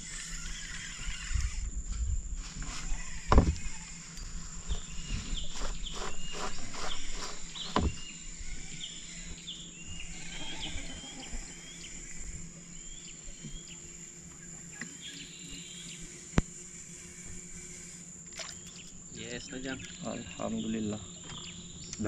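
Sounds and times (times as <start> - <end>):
high insect drone: 0.0 - 22.0
bird chirping: 3.0 - 16.3, 18.5 - 22.0
dull knock: 7.7 - 8.0.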